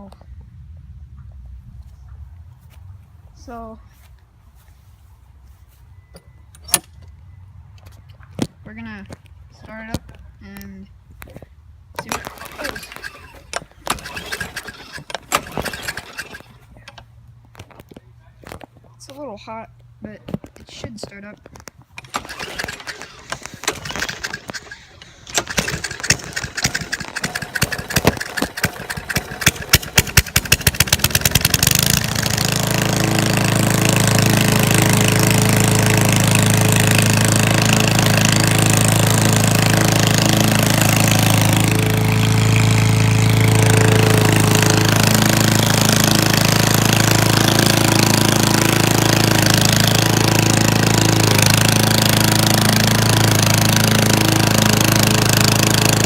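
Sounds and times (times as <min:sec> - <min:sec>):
lawn mower engine starting: 0:12.0 - 0:17.1, 0:22.0 - 0:56.0.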